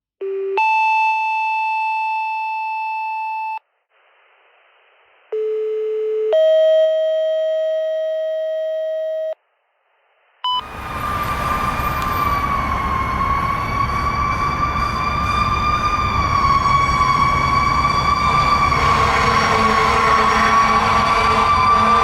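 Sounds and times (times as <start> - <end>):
radio hiss: 3.9 - 5.5
vehicle noise: 10.4 - 22.0.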